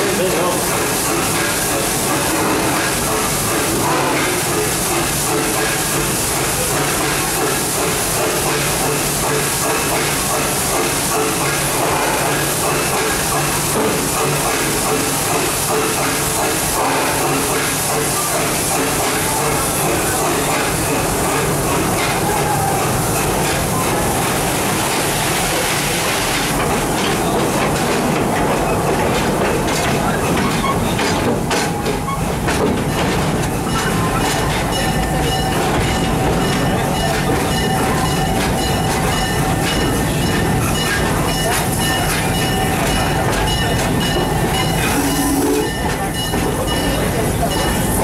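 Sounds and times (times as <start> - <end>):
train rumbling on track: 0.0 - 48.0.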